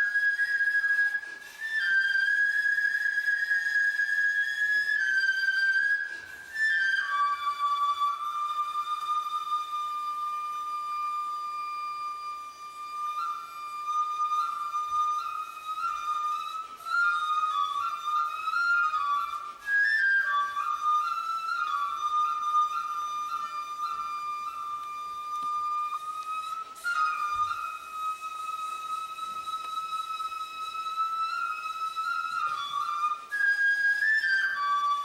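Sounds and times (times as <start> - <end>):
solo flute melody: 0.0 - 35.0.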